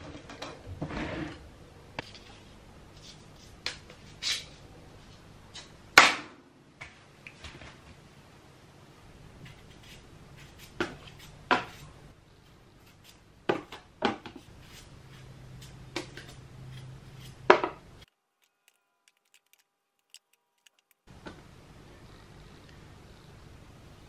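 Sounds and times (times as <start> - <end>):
knife scraping potato skin: 9.4 - 11.9, 14.5 - 21.0.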